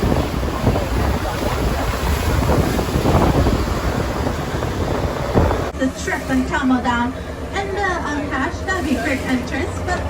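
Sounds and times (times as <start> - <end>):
wind buffeting microphone: 0.0 - 5.8
boat rumbling: 0.0 - 10.0
sea wash: 0.0 - 10.0.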